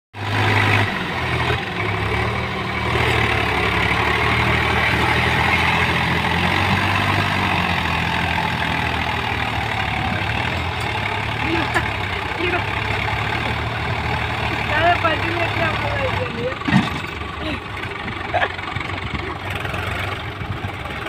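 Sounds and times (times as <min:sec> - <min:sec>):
tractor engine rattling hum: 0:00.2 - 0:21.0.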